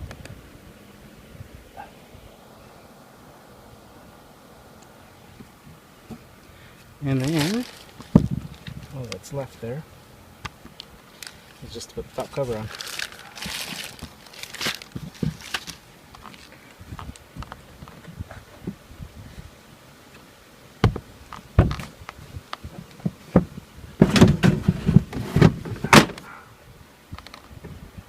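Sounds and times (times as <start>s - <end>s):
plastic cover knocks and thunks: 12.8s - 15.8s, 23.0s - 26.2s.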